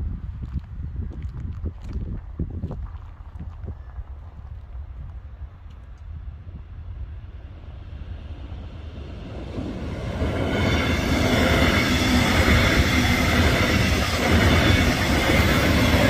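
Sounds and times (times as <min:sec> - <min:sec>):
train wheels rumbling on rail: 0:05.8 - 0:16.0
steady high tone: 0:09.9 - 0:16.0.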